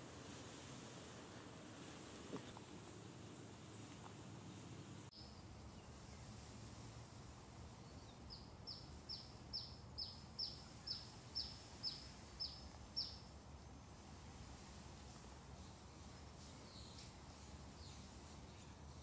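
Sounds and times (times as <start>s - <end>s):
faint outdoor background noise: 0.0s - 19.0s.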